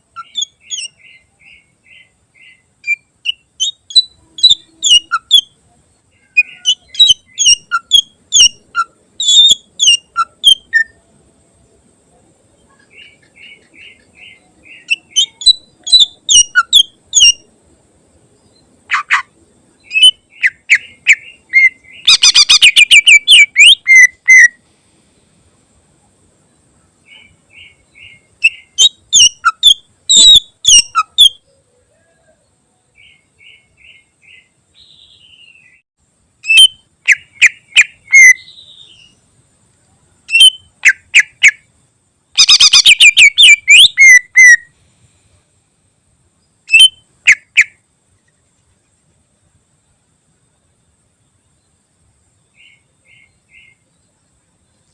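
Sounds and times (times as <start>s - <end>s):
bird chirps: 0.0s - 11.0s, 12.5s - 17.5s, 18.3s - 24.6s, 27.0s - 35.8s, 36.4s - 39.3s, 40.3s - 41.7s, 42.4s - 44.7s, 46.4s - 48.4s, 52.4s - 54.9s
bird singing whistled phrases: 0.2s - 1.6s, 2.8s - 5.5s, 6.2s - 11.0s, 13.0s - 17.4s, 19.9s - 24.6s, 27.1s - 31.4s, 36.5s - 39.2s, 40.3s - 41.3s, 42.4s - 44.7s, 46.7s - 47.7s
fast rattling bird trill: 14.8s - 17.4s, 19.9s - 24.6s, 28.0s - 31.4s, 36.4s - 38.5s, 40.3s - 41.6s, 42.4s - 44.6s, 46.7s - 47.8s.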